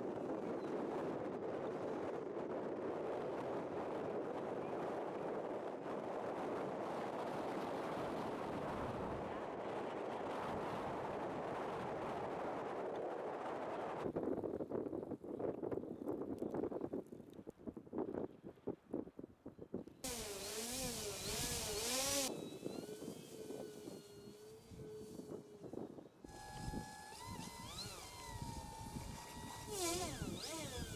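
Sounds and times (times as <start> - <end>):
strong wind on microphone: 19.6 - 30.9.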